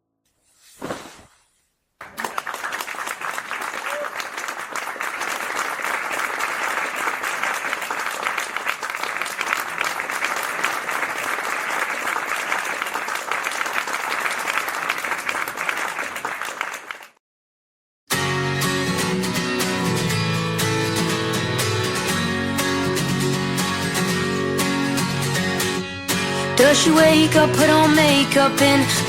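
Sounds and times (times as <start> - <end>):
audience applauding: 2.0 - 17.2
acoustic guitar strumming: 18.1 - 29.0.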